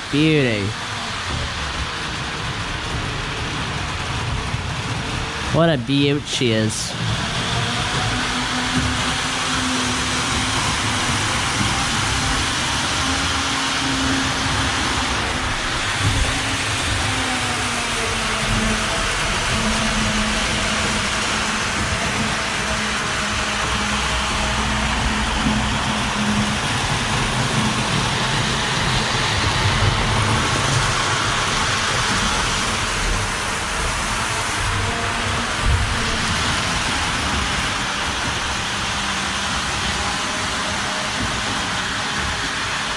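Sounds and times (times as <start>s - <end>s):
model train wheels rumbling on track: 0.0s - 42.9s.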